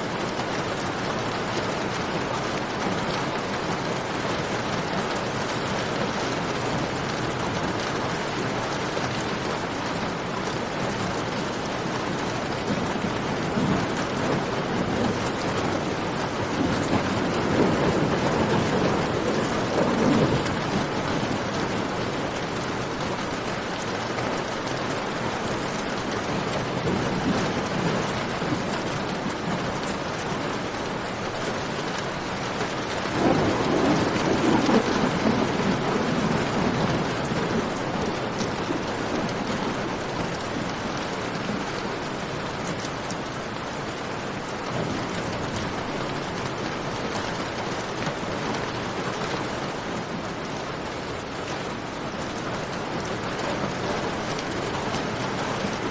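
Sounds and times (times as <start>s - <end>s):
heavy rain: 0.0s - 55.9s
low rolls of thunder: 10.4s - 23.8s, 24.7s - 55.9s.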